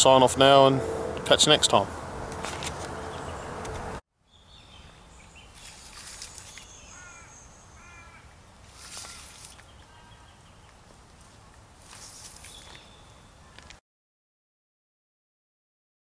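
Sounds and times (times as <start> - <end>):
birds calling: 1.7 - 10.8, 12.0 - 13.7.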